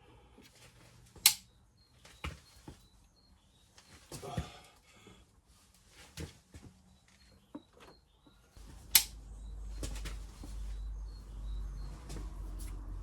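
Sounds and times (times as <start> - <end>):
faint bird chirps: 1.4 - 5.1, 6.8 - 12.9
low steady hum: 6.9 - 13.0.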